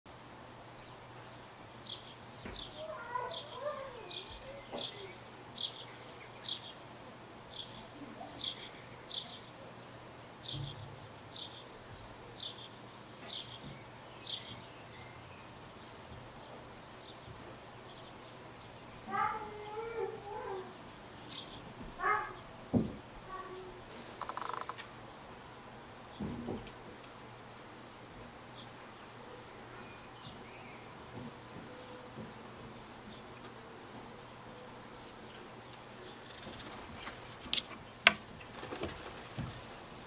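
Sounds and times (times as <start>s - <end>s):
lower wavering bird calls: 2.0s - 6.8s, 24.2s - 24.8s
small bird high downward call: 2.6s - 5.2s.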